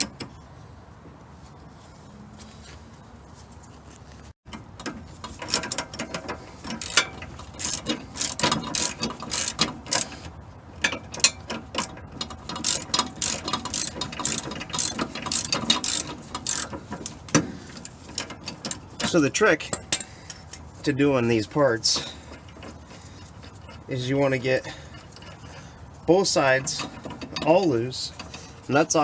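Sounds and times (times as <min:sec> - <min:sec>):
hand ratchet clicking: 0:04.8 - 0:10.2, 0:10.8 - 0:20.6.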